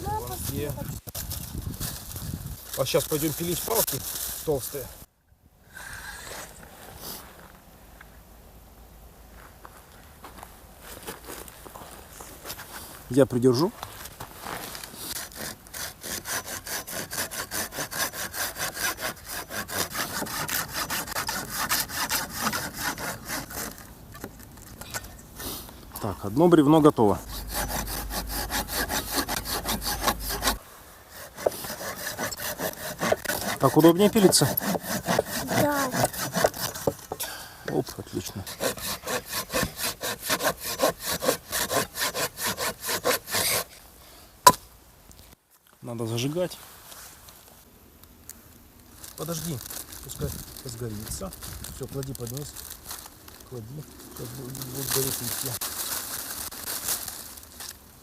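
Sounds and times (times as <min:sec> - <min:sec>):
hand saw cutting wood: 0:15.0 - 0:25.0, 0:27.2 - 0:37.2, 0:38.2 - 0:43.8.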